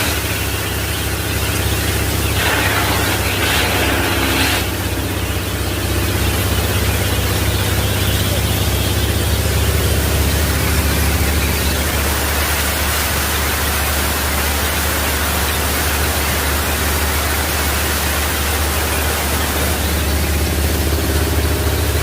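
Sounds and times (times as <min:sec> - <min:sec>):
low engine hum: 0:00.0 - 0:22.0
wood chipper rushing noise: 0:00.0 - 0:22.0.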